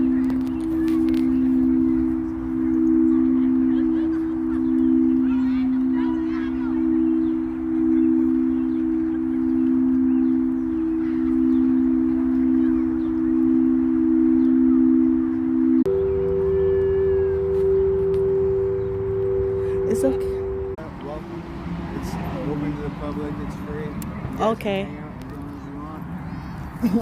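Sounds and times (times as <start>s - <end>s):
singing bowls ringing: 0.0s - 27.0s.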